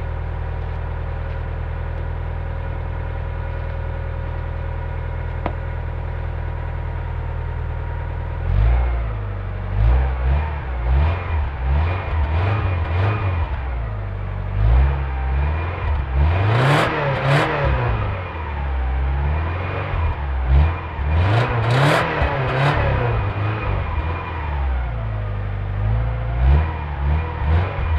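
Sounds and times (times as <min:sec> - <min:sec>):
car engine revving: 0:08.3 - 0:27.9.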